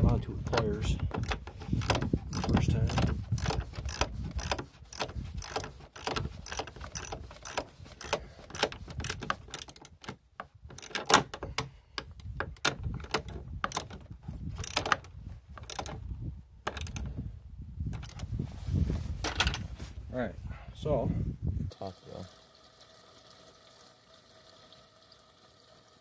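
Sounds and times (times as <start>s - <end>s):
hand ratchet clicking: 0.5s - 14.0s, 14.6s - 16.0s, 16.7s - 17.1s.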